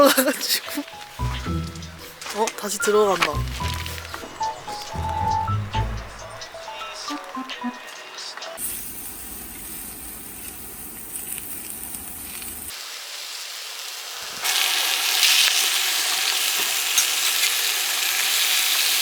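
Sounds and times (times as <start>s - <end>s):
food sizzling in a hot pan: 8.0s - 19.0s.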